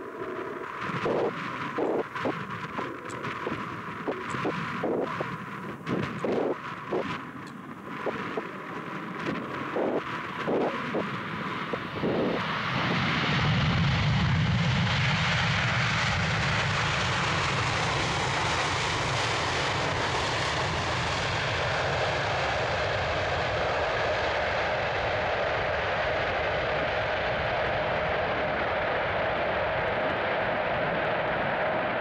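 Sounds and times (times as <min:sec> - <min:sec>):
wind buffeting microphone: 0:00.0 - 0:22.1
jet engine noise: 0:00.0 - 0:32.0.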